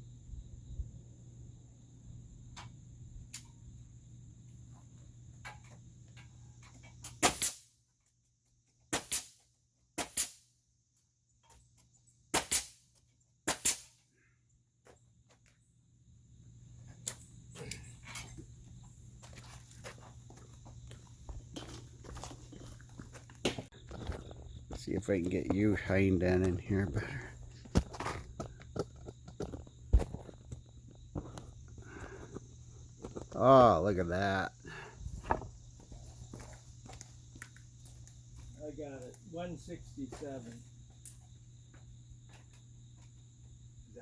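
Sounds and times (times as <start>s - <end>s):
nail gun firing: 7.2s - 7.7s, 8.9s - 9.4s, 10.0s - 10.4s, 12.4s - 12.8s, 13.5s - 13.9s.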